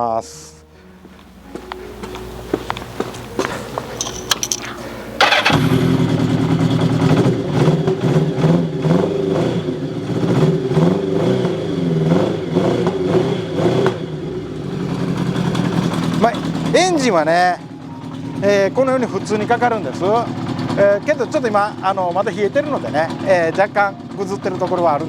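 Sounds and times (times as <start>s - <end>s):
motorcycle engine idling unevenly: 0.8s - 25.0s
starter clicks: 4.0s - 5.7s.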